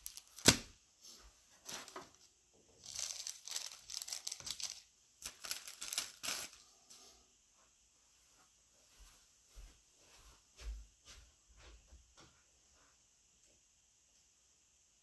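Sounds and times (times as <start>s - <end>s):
plastic wrapping crinkling and tearing: 0.0s - 0.7s, 2.8s - 6.6s.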